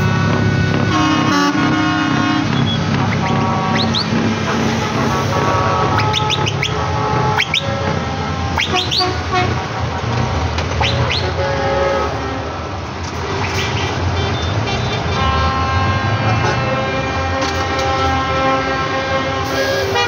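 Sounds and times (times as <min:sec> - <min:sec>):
engines running: 0:00.0 - 0:11.5
truck horns blasting: 0:00.0 - 0:20.0.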